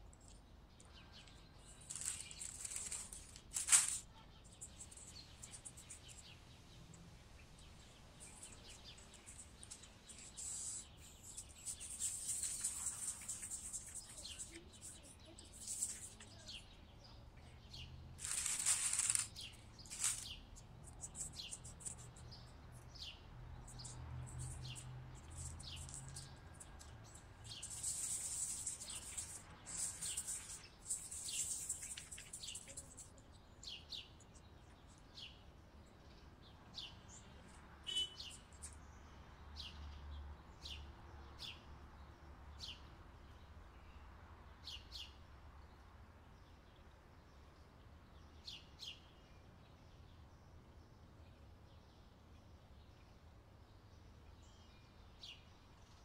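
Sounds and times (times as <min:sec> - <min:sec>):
small birds chirping: 0:00.0 - 0:56.0
plastic rustling: 0:01.7 - 0:04.9, 0:18.2 - 0:20.4.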